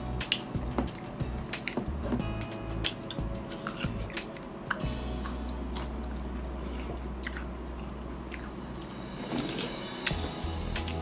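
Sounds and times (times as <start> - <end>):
crisp biting and chewing: 2.8 - 10.2.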